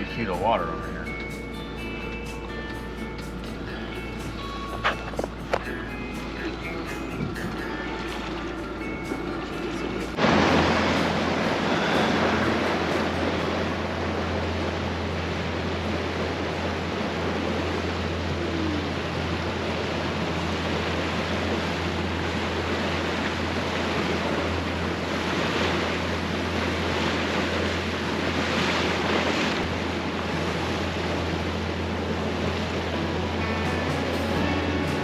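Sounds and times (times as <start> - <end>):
boat engine drone: 0.0 - 35.0
water rushing along hull: 0.0 - 35.0
water splashing: 2.3 - 35.0
wind on microphone: 4.3 - 26.0.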